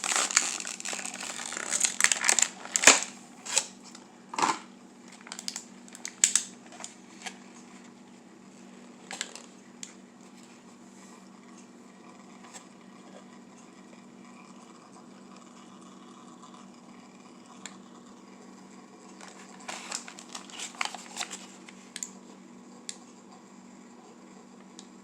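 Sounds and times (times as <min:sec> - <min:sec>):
plastic packaging crinkling: 0:00.0 - 0:03.9, 0:05.1 - 0:07.4, 0:09.0 - 0:09.6, 0:19.2 - 0:22.1.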